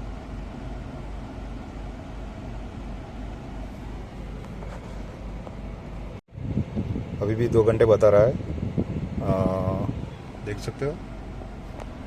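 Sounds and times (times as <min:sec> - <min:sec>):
road and engine noise in car: 0:00.0 - 0:12.0.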